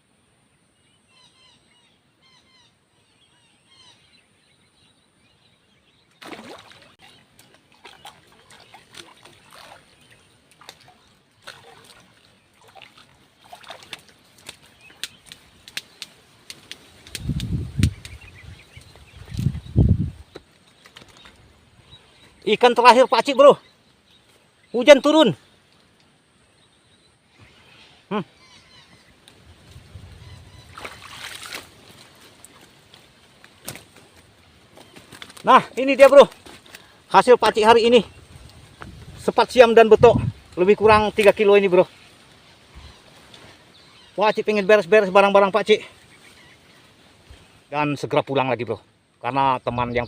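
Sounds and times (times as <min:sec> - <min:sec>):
water splashing and trickling: 0:06.1 - 0:26.2, 0:29.0 - 0:47.9
water sloshing and splashing: 0:06.2 - 0:15.7, 0:30.6 - 0:35.4
wind rumble on microphone: 0:17.0 - 0:20.4, 0:29.4 - 0:31.2, 0:38.1 - 0:41.2.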